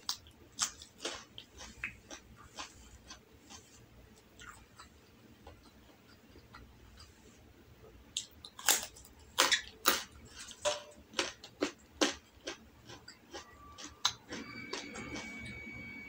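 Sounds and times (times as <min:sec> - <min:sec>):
crisp carrot crunches: 0:08.2 - 0:15.2.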